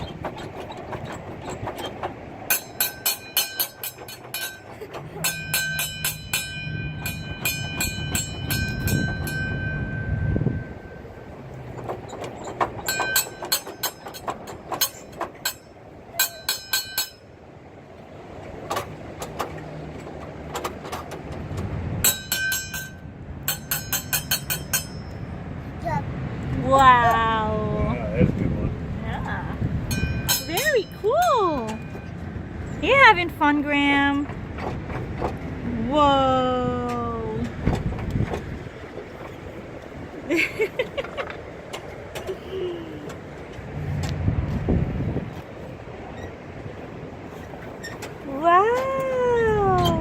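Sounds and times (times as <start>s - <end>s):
rapid ringing clicks: 1.6s - 10.1s.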